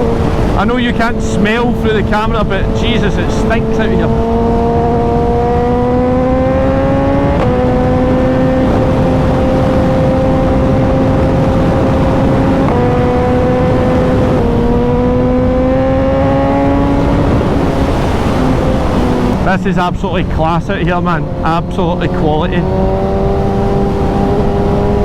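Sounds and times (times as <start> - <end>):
motorcycle engine accelerating: 0.0 - 25.0
wind rush: 0.0 - 25.0.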